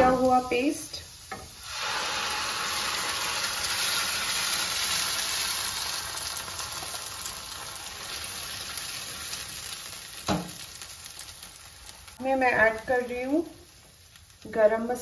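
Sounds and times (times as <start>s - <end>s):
paste sizzling in a pan: 0.0s - 15.0s.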